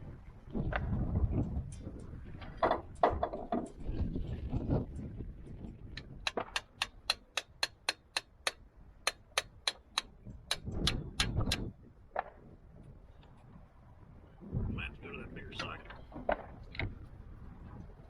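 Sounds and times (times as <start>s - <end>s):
hand tool clicking: 6.2s - 11.6s.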